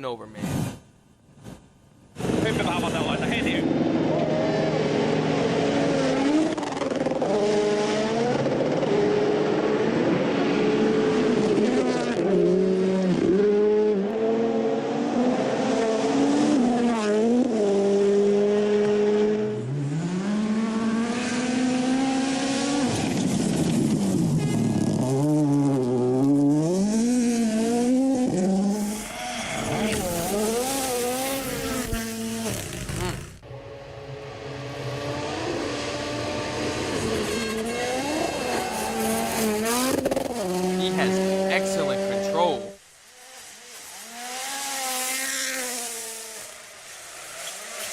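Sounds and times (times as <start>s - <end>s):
rally car engines revving: 1.4s - 47.9s.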